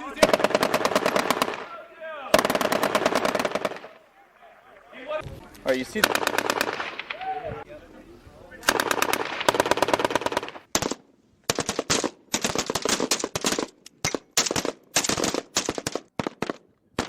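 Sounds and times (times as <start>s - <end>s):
automatic gunfire bursts: 0.2s - 1.7s, 2.3s - 4.0s, 6.0s - 7.2s, 8.6s - 13.7s, 14.4s - 17.0s.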